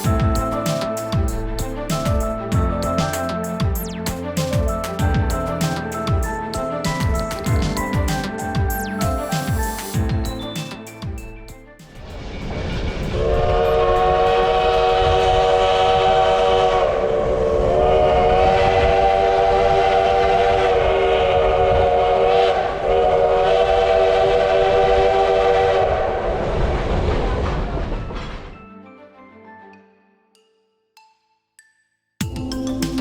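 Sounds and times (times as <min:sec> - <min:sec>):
moving train rumble: 0:12.0 - 0:28.5
steam locomotive chime whistle: 0:13.1 - 0:26.2.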